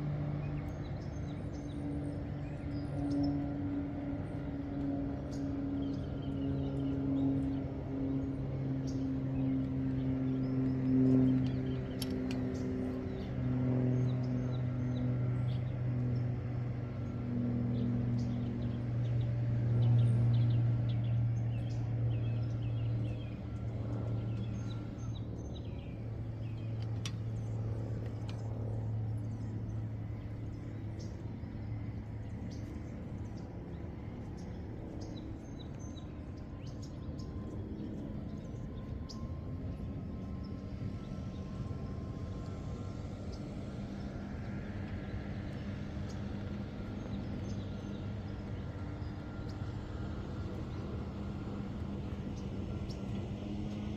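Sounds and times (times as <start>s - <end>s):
low vehicle engine hum: 0.0s - 53.9s
birds chirping: 0.2s - 53.9s.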